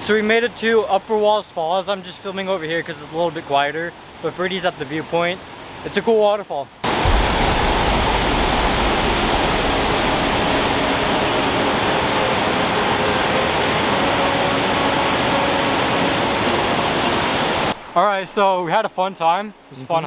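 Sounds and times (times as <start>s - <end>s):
waterfall rushing: 6.8s - 18.4s.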